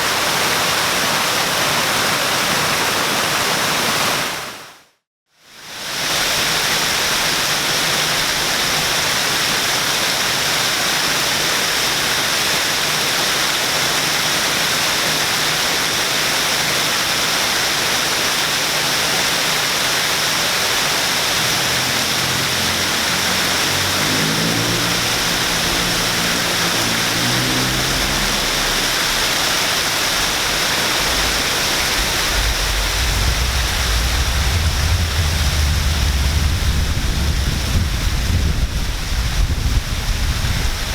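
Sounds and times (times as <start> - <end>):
waterfall pouring: 5.8 - 40.9
engine passing: 20.4 - 39.1
deep rumble: 20.4 - 40.9.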